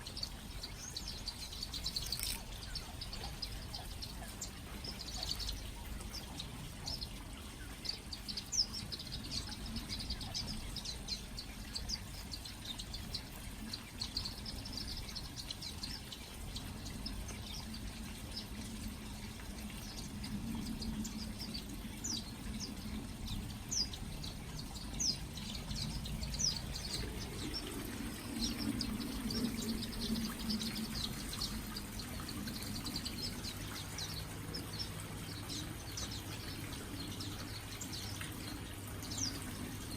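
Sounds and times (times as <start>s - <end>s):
finches chirping: 0.0s - 39.9s
low hum: 16.4s - 39.9s.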